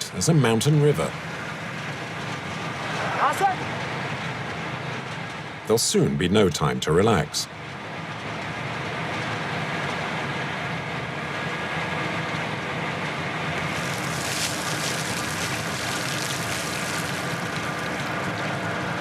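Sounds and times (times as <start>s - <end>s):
steady hiss: 13.6s - 19.0s.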